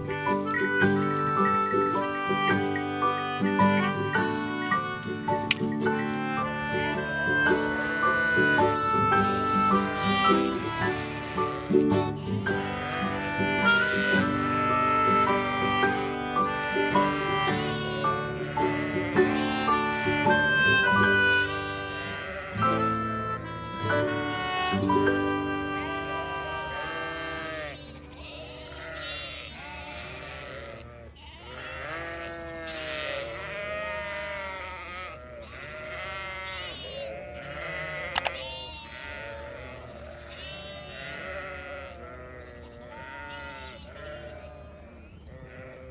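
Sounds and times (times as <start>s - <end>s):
music: 0.0s - 27.6s
goats bleating: 0.0s - 45.9s
sharp click: 5.0s - 5.9s, 38.1s - 38.4s.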